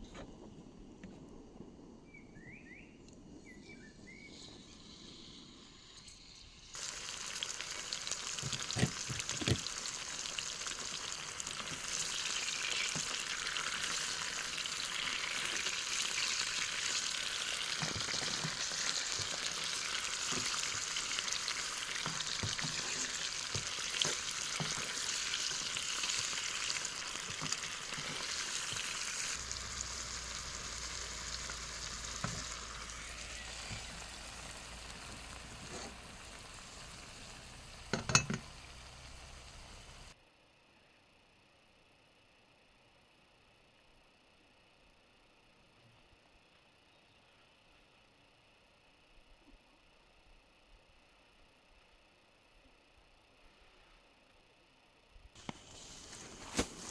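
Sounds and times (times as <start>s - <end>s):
food sizzling in a pan: 4.2s - 40.2s, 55.4s - 56.9s
utensil knocking against pan: 37.9s - 38.5s.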